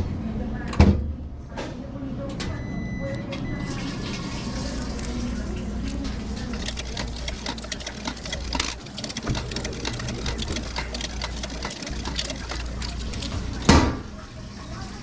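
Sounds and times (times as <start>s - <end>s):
rapid clattering clicks: 5.0s - 14.0s.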